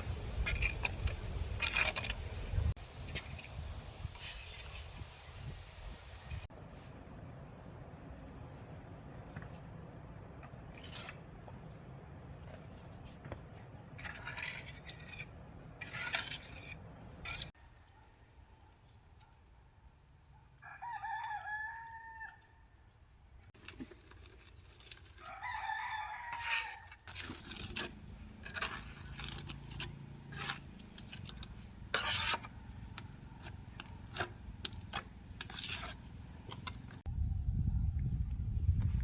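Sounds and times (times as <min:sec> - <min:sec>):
rooster crowing: 0:20.6 - 0:22.6, 0:25.2 - 0:27.1.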